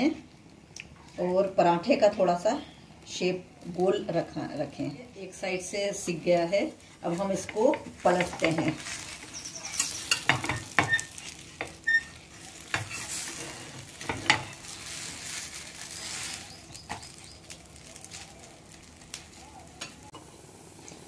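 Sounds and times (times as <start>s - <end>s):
paratha sizzling in oil: 5.3s - 21.0s
spatula scraping and tapping griddle: 7.1s - 18.2s.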